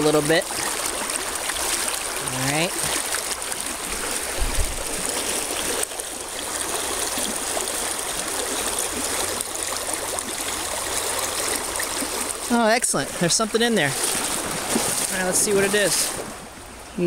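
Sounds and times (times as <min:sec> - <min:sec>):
stream water rushing over rocks: 0:00.0 - 0:17.0
low thump: 0:04.4 - 0:04.8.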